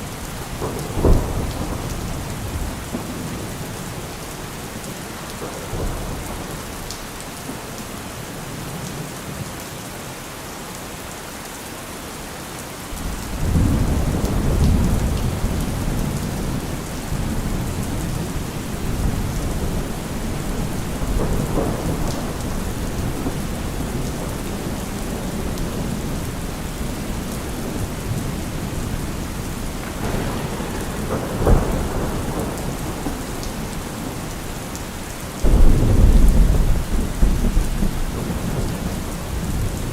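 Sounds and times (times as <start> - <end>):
sharp crack of thunder: 0.0 - 4.2, 13.0 - 39.9
rolling thunder rumble: 0.0 - 7.2, 12.9 - 39.9
heavy rain: 0.0 - 39.9.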